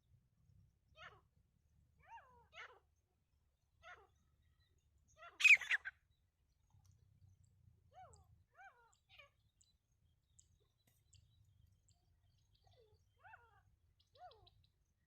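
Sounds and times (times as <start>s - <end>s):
francolin calling: 5.3s - 5.9s.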